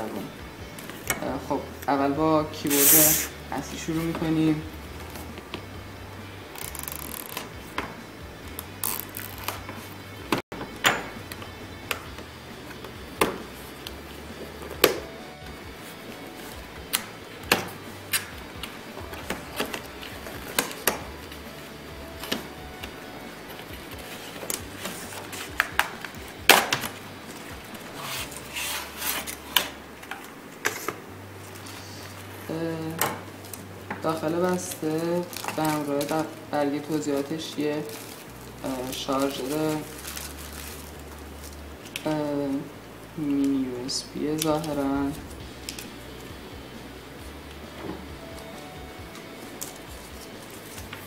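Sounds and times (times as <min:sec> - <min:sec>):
packaging rustling and scraping: 0:17.4 - 0:32.6, 0:33.2 - 0:42.1, 0:47.9 - 0:51.0.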